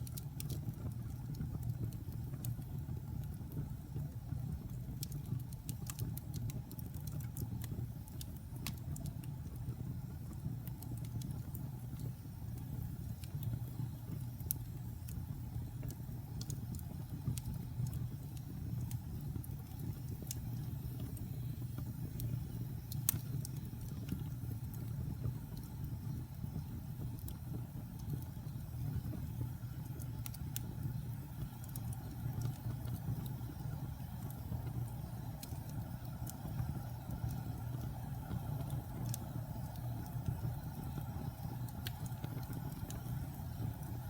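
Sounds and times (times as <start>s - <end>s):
burning wood crackling and popping: 0.0s - 44.0s
low rumble of flames: 0.0s - 44.0s.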